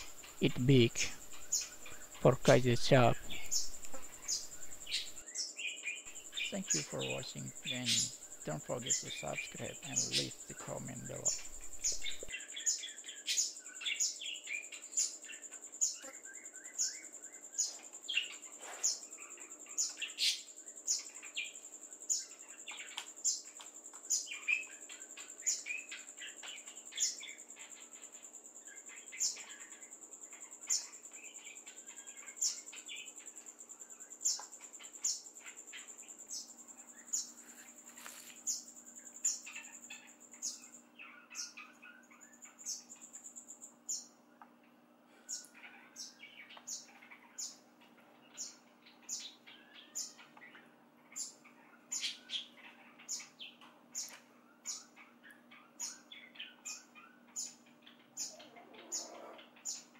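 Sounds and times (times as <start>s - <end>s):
high-pitched insect-like whine: 0.0s - 44.2s
faint warbling bird song: 0.0s - 59.9s.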